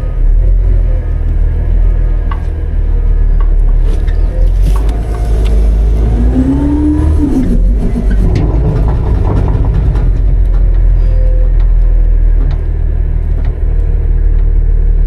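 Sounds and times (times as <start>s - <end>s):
rising and falling whine: 0.0s - 12.0s
garbage truck engine revving: 0.0s - 15.0s.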